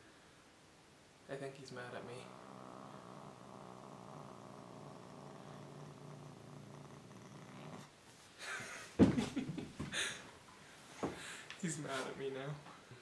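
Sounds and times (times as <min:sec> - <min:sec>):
cat purring rumble: 0:01.6 - 0:08.0.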